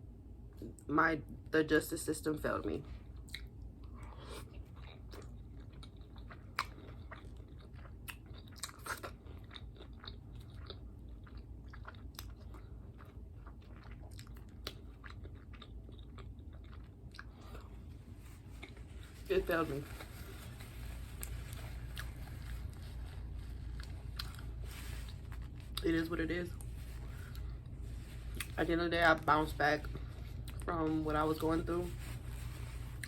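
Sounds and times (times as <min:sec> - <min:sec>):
low steady hum: 0:00.0 - 0:33.0
person chewing crunchy food: 0:03.0 - 0:25.9, 0:26.5 - 0:28.6.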